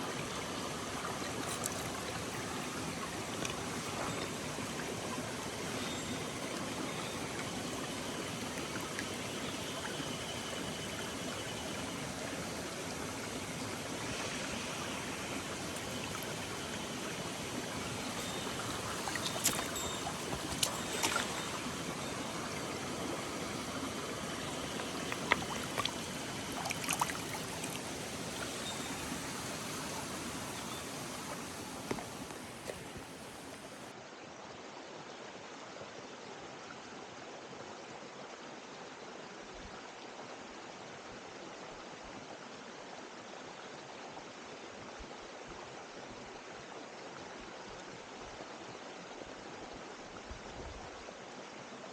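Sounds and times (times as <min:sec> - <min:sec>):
stream trickling over rocks: 0:00.0 - 0:33.9.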